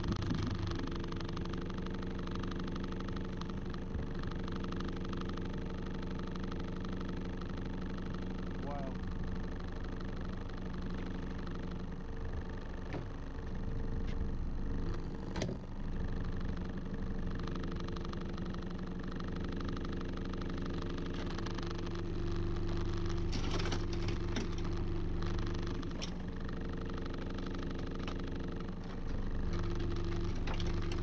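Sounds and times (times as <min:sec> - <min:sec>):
boat motor idling: 0:00.0 - 0:31.0
sharp clicks and knocks: 0:22.8 - 0:26.3.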